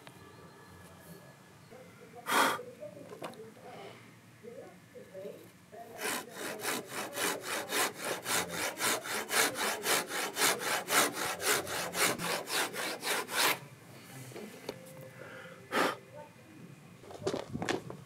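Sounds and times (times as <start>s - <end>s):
handsaw cutting wood: 5.9s - 13.6s.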